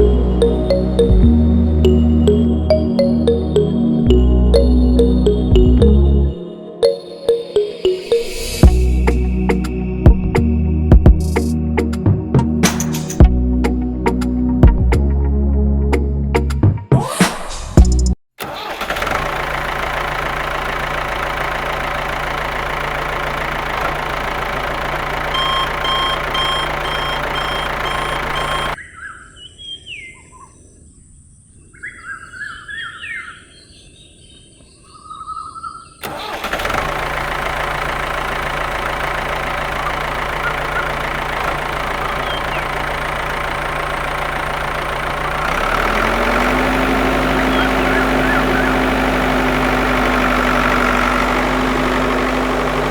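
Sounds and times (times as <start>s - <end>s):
small tractor motor running: 18.4s - 28.8s, 36.0s - 52.9s
birds chirping: 21.3s - 36.4s, 38.5s - 52.9s.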